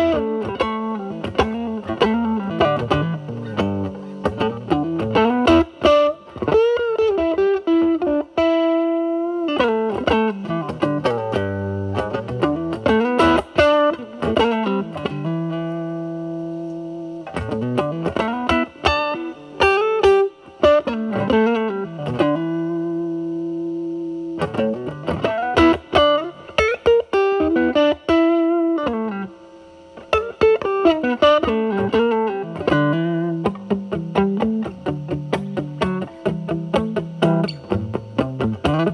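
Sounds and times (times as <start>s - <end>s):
fuzz electric guitar blues lead: 0.0s - 38.9s.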